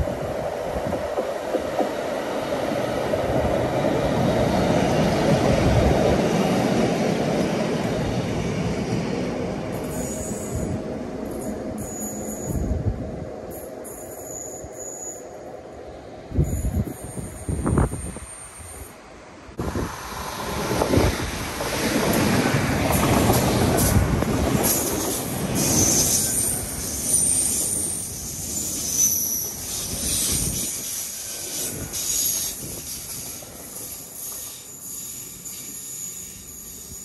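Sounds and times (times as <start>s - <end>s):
train wheels rumbling on rail: 0.0s - 37.0s
wheel squeal: 9.8s - 10.7s, 11.8s - 12.7s, 13.6s - 15.4s, 24.8s - 37.0s.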